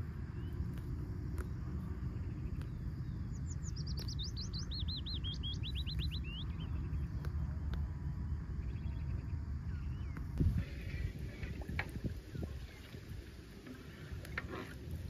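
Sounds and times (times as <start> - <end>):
songbird singing: 0.0 - 15.0
steady low rumble: 0.0 - 15.0
faint bird chirps: 2.2 - 7.3, 8.6 - 11.5.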